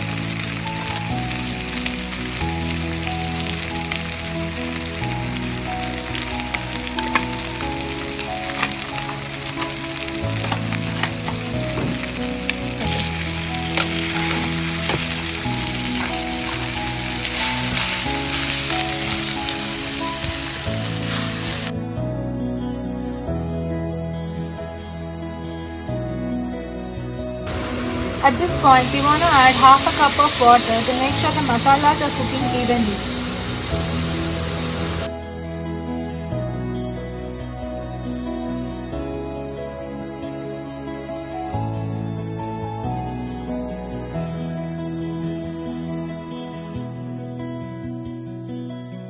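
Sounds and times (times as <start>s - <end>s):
chicken sizzling in oil: 0.0s - 21.7s, 27.5s - 35.1s
soft background music: 0.0s - 47.5s.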